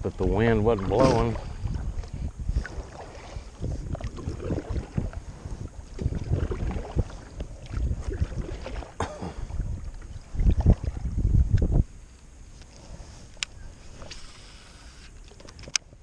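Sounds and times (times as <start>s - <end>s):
wind buffeting microphone: 0.0s - 12.0s
kayak paddling: 0.0s - 16.0s.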